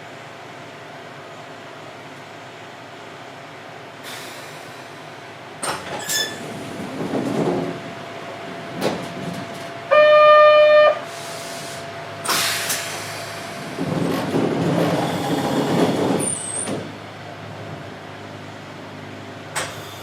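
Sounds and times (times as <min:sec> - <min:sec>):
train car interior hum: 0:00.0 - 0:20.0
air hiss: 0:11.1 - 0:13.7.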